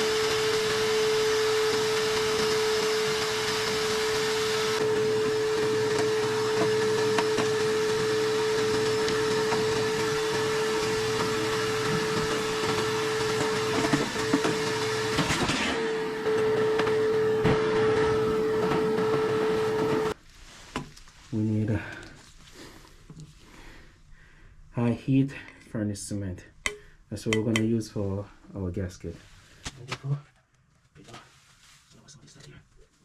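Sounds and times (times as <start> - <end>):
vacuum cleaner running: 0.0 - 20.2.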